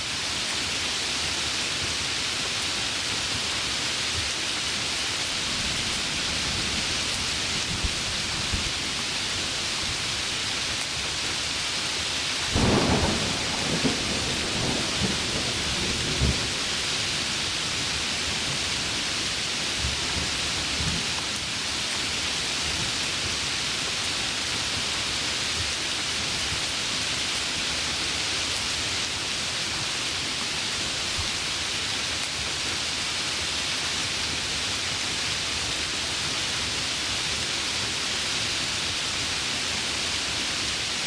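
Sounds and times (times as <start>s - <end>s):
heavy rain falling: 0.0s - 41.0s
thunderclap rumbling: 12.5s - 16.9s.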